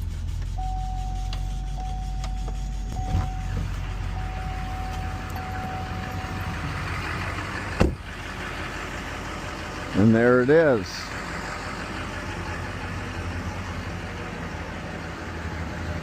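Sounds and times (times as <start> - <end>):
diesel engine rumbling: 0.0 - 16.0
dashboard warning chime: 0.6 - 6.9.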